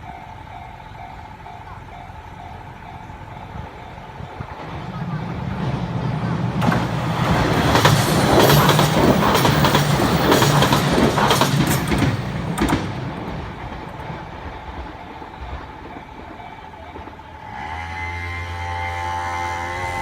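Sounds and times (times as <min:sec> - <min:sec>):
wheels clacking over rail joints: 0:00.0 - 0:18.2
train wheel and rail rumble: 0:00.0 - 0:20.0.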